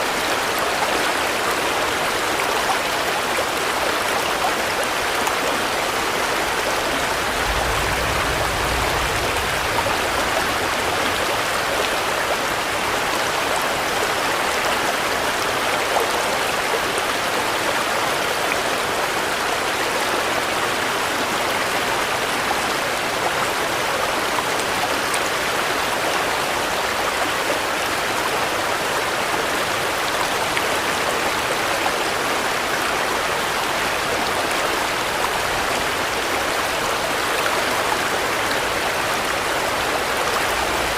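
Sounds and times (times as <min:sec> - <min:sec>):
steady rain falling: 0:00.0 - 0:40.9
low rumble: 0:07.0 - 0:11.7.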